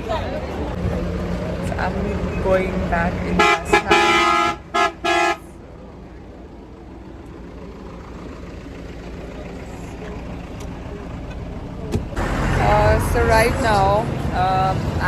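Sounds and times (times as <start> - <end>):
low rumble of engine and traffic: 0.0 - 15.0
vehicle horn honking: 3.3 - 5.6.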